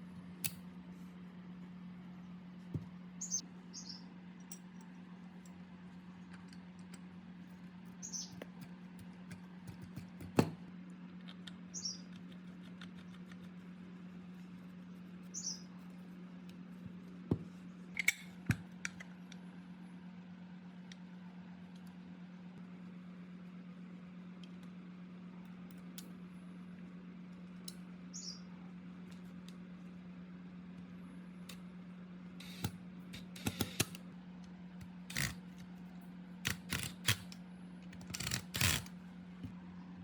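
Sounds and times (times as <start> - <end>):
steady low hum: 0.0 - 40.0
metal parts clicking and knocking: 35.1 - 35.4, 36.4 - 37.4, 38.0 - 38.9.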